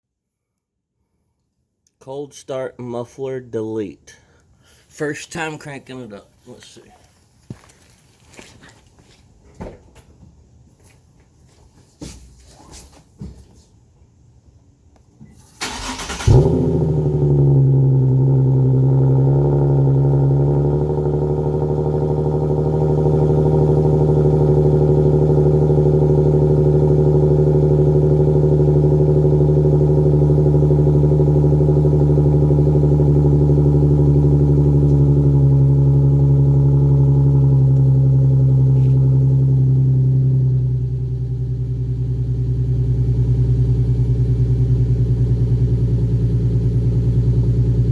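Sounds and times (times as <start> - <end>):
car engine cranking: 15.4 - 47.9
car engine idling: 15.4 - 47.9.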